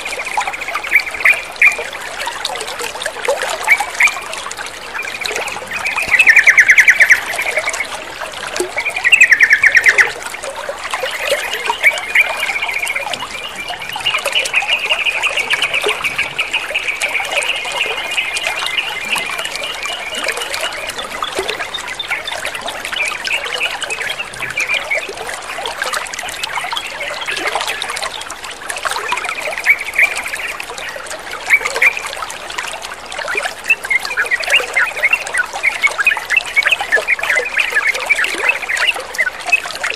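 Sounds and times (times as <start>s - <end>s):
trickling water: 0.0s - 39.9s
bird chattering calls: 8.9s - 10.2s.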